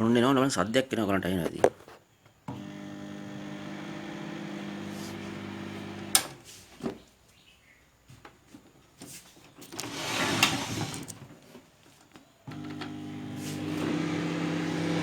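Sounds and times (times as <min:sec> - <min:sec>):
microwave oven hum: 0:02.5 - 0:06.4, 0:12.5 - 0:15.0
microwave clicks: 0:05.3 - 0:06.4
rustling handling noise: 0:06.3 - 0:12.4.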